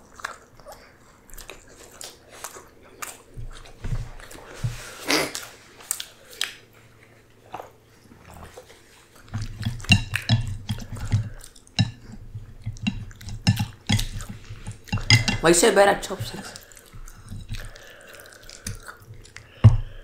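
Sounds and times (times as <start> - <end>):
people chewing: 0.0 - 20.0
utensils clicking on dishes: 9.4 - 16.6.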